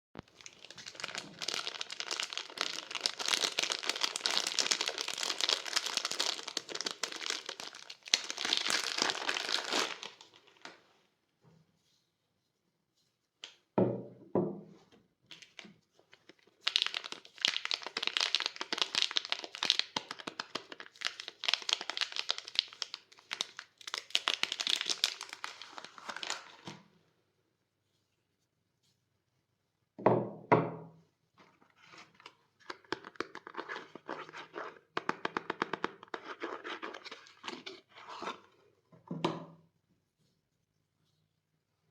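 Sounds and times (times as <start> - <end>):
packaging crinkling and tearing: 0.2 - 10.8, 15.3 - 26.8.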